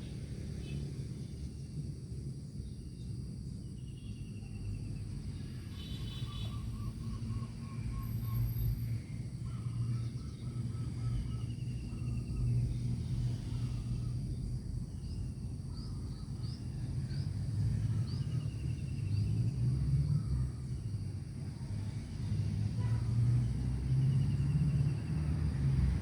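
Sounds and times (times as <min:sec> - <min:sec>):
high insect hum: 0:00.0 - 0:26.0
bird calls with repeated notes: 0:05.8 - 0:08.7.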